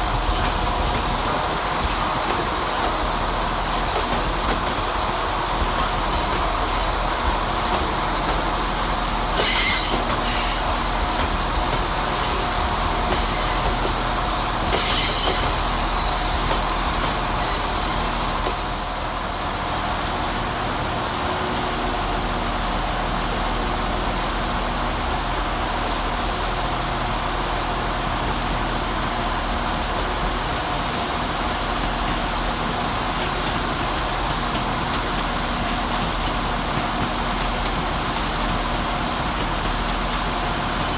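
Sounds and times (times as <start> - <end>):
diesel train engines droning: 0.0 - 40.9
sharp wheel squeals: 9.4 - 10.6, 14.7 - 15.5.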